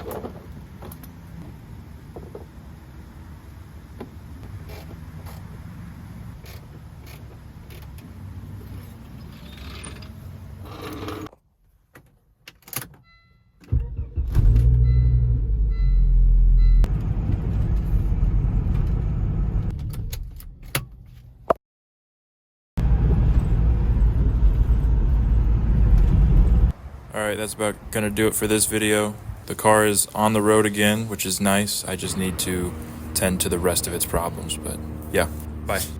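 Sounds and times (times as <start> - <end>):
car engine and road noise: 0.0 - 21.6, 22.8 - 35.9
short beeps: 14.8 - 16.9.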